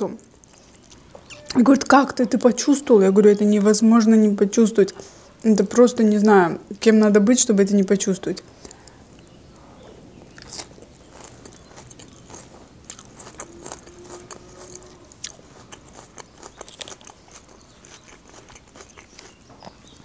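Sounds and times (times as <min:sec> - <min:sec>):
person chewing salad: 0:00.2 - 0:01.5, 0:08.5 - 0:20.0.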